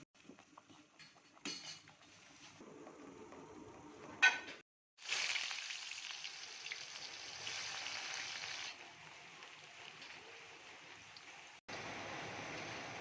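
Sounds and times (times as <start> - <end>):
food sizzling in hot oil: 5.0 - 13.0.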